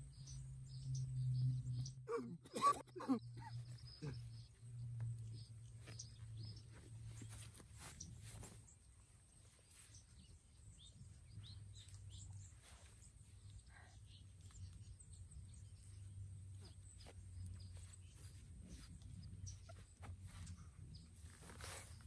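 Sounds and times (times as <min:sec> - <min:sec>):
faint bird chirps: 0:00.1 - 0:22.0.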